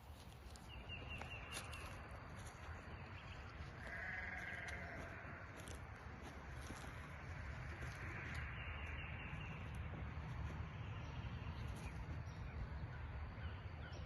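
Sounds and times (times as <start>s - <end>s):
quavering animal call: 3.8s - 5.8s.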